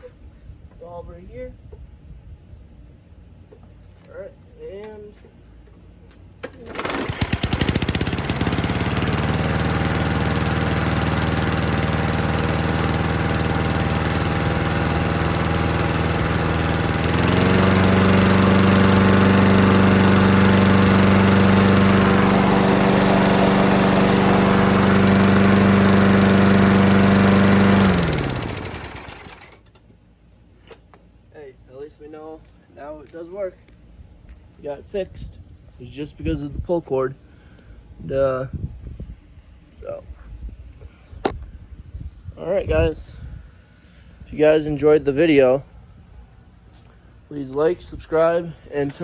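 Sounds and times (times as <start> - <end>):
lawn mower engine running: 6.4 - 29.8.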